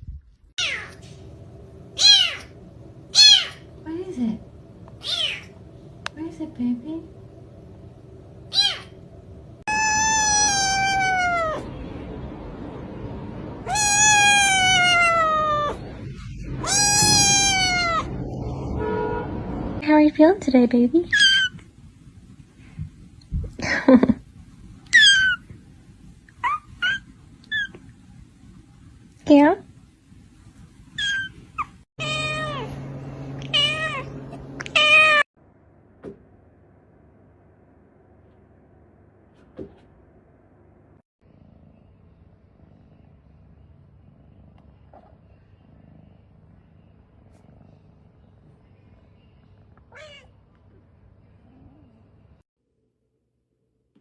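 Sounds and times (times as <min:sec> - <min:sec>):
cat meowing: 0:02.0 - 0:02.5, 0:05.0 - 0:05.5, 0:08.5 - 0:08.9, 0:09.7 - 0:11.7, 0:13.6 - 0:15.8, 0:16.4 - 0:18.4, 0:32.0 - 0:32.8, 0:33.4 - 0:35.2, 0:49.9 - 0:50.3.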